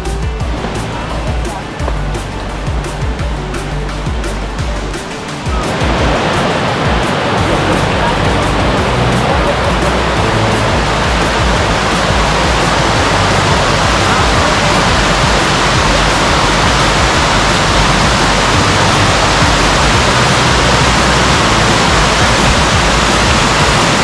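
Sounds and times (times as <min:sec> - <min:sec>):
waterfall roaring: 0:00.0 - 0:24.0.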